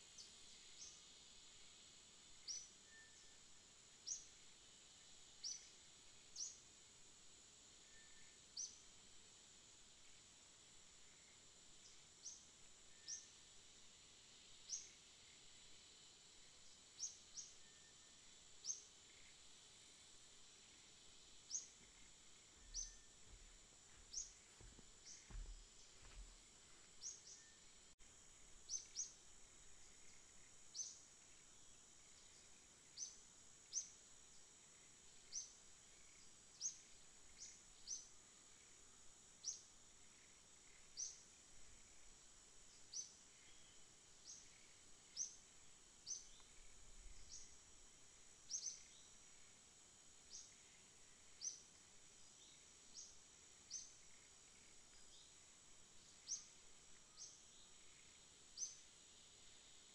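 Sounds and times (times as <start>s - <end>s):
steady high hiss: 0.0s - 59.9s
faint high bird chirps: 2.4s - 4.3s, 7.8s - 8.8s, 21.4s - 26.4s.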